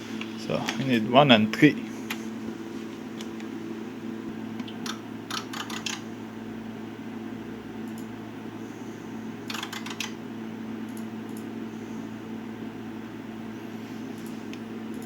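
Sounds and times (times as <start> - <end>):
cooling fan hum: 0.0 - 15.0
small clicks: 4.6 - 6.0, 9.5 - 10.1.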